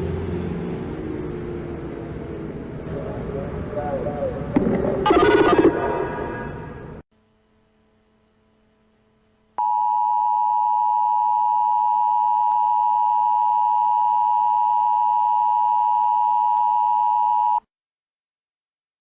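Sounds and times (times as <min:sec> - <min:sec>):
two-pitch alarm tone: 0:05.0 - 0:06.0.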